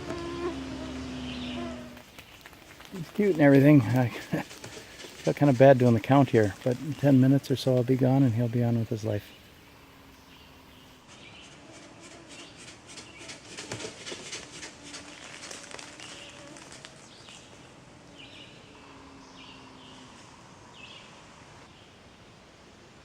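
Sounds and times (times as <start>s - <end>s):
rapid crackling and clicking: 1.9s - 8.6s, 12.3s - 17.5s.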